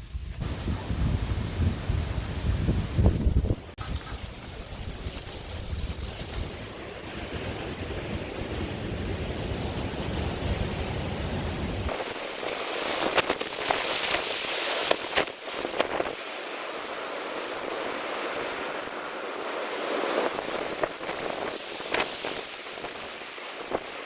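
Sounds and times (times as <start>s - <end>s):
wind buffeting microphone: 0.0s - 14.2s, 17.5s - 24.0s
sharp crackles and pops: 11.9s - 16.2s.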